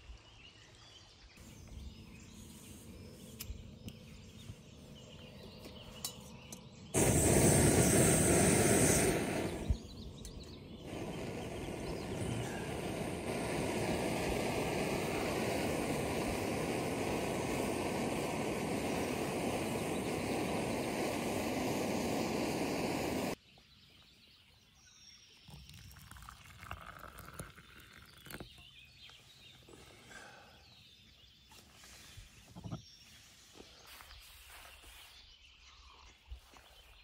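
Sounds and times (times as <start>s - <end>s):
loud steady rushing noise: 10.9s - 23.4s.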